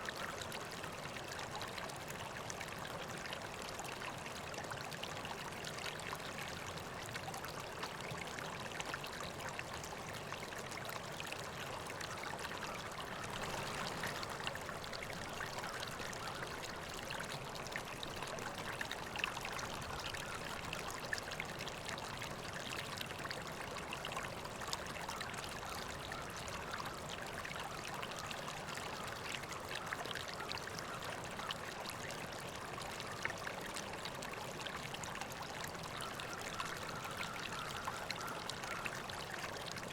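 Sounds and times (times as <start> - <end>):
river water babbling: 0.0 - 39.9.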